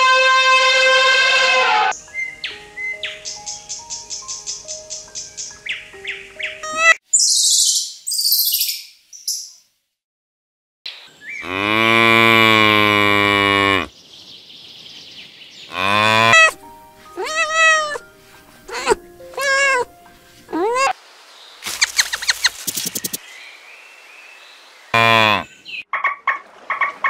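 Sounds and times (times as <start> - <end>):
kitten meowing: 6.6 - 7.0, 16.2 - 16.6, 17.2 - 18.0, 18.7 - 19.9, 20.5 - 20.9
cow mooing: 11.4 - 13.9, 15.7 - 16.6, 17.2 - 18.0, 18.7 - 19.9, 25.0 - 25.5
high quick chirps: 21.6 - 23.2.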